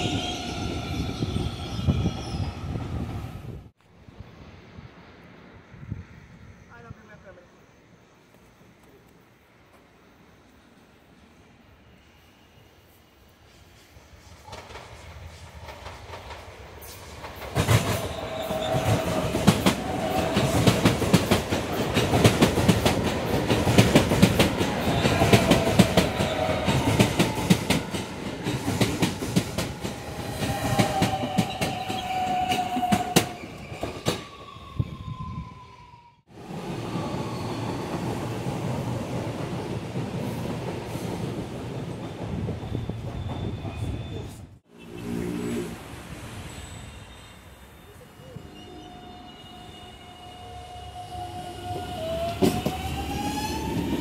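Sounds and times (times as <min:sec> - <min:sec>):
train running noise: 0:00.0 - 0:35.0, 0:36.3 - 0:54.0
train whine: 0:00.0 - 0:54.0
wheel squeals: 0:42.4 - 0:44.4.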